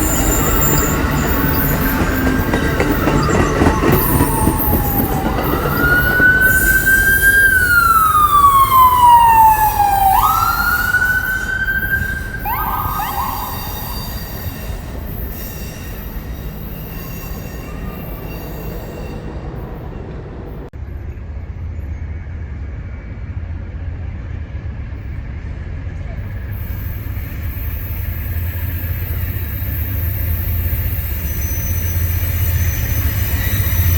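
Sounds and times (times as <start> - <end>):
emergency siren wailing: 0.0 - 16.2
passing train rumble: 0.0 - 33.9.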